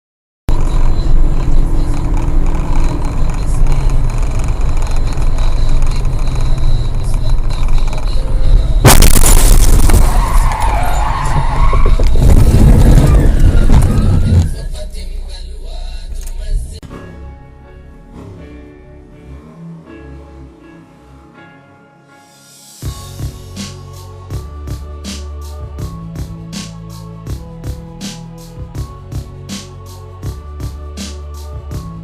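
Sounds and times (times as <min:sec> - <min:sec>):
car and road noise: 0:00.5 - 0:21.7
noisy commotion: 0:08.6 - 0:15.0
loud crash: 0:08.8 - 0:14.8.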